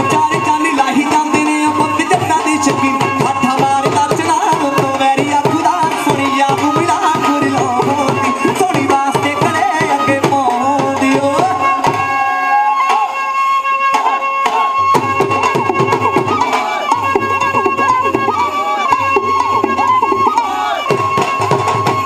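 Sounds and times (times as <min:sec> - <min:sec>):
folk music melody: 0:00.0 - 0:22.0.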